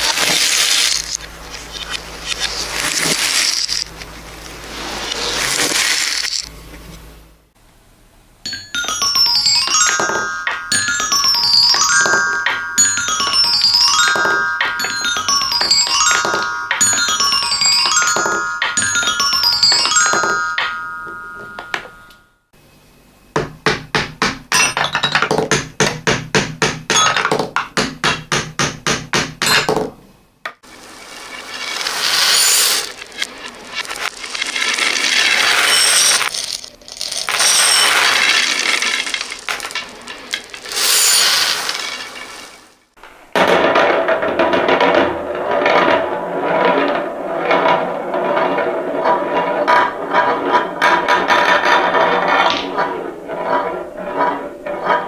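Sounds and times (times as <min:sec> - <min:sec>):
reversed bell-like xylophone notes: 0:08.8 - 0:22.2.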